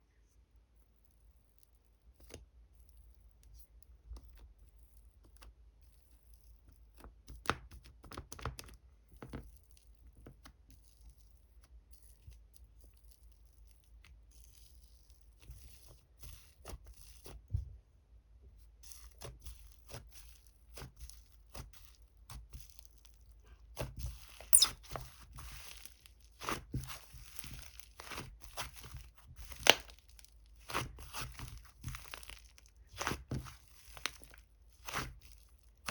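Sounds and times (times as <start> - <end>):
hands squishing crunchy slime: 23.7 - 35.9.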